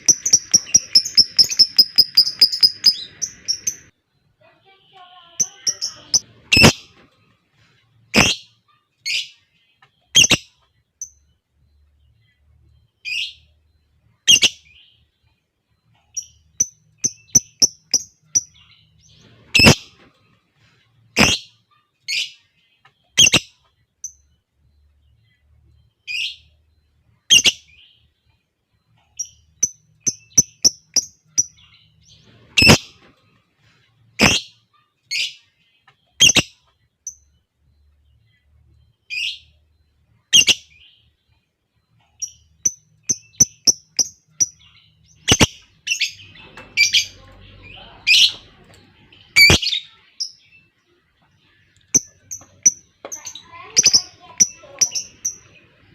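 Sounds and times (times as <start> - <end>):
lovebird shrill calls: 0.0 - 3.9
quick ticking notes: 0.0 - 3.9.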